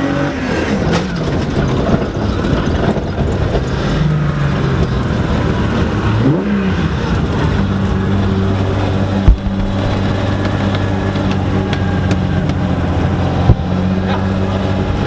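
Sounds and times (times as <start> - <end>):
car engine running: 0.0 - 15.0
sharp thumps: 8.6 - 14.4.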